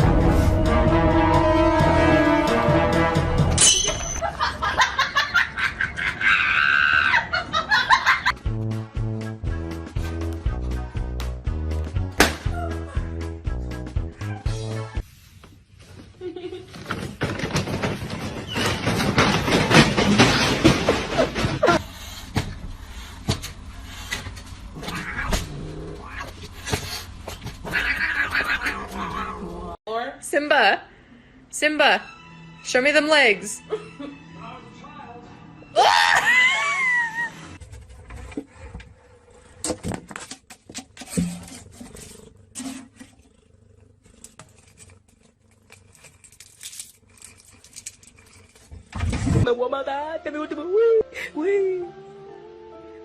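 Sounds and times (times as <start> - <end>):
cat meowing: 24.8 - 26.4, 27.6 - 29.5.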